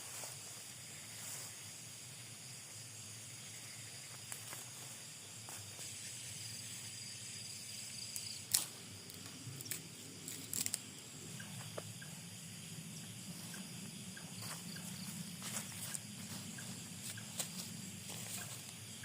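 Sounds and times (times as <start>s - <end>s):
insects chirping: 0.0s - 19.0s
low outdoor rumble: 8.7s - 19.0s.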